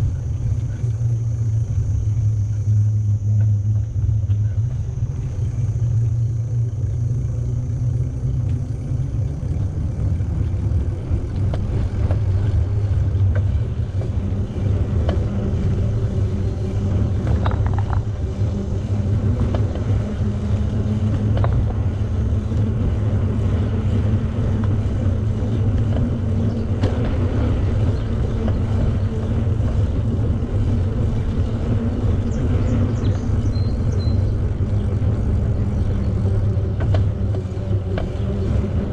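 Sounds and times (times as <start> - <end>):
wind buffeting microphone: 0.0 - 38.9
bicycle clicks and rattles: 3.3 - 38.9.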